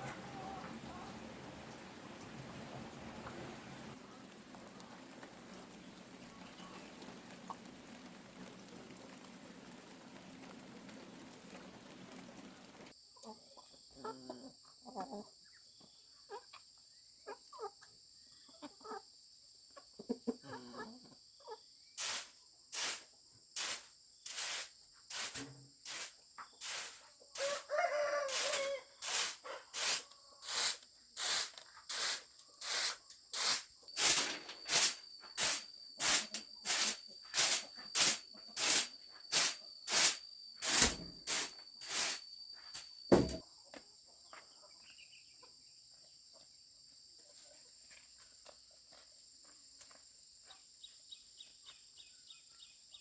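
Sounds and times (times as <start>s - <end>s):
insects trilling: 21.4s - 43.6s
short work strokes: 23.6s - 27.7s, 28.3s - 42.2s
rooster crowing: 27.4s - 29.4s.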